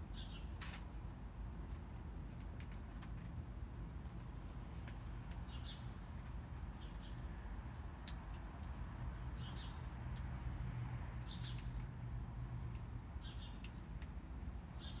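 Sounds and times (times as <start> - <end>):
bird chirping: 0.1 - 1.2, 3.7 - 8.1, 8.7 - 15.0.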